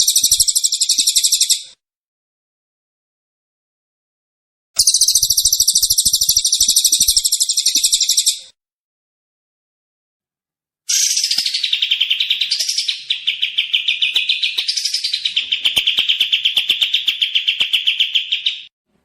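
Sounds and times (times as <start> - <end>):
songbird trilling: 0.0 - 1.6, 4.8 - 8.4, 10.9 - 18.7.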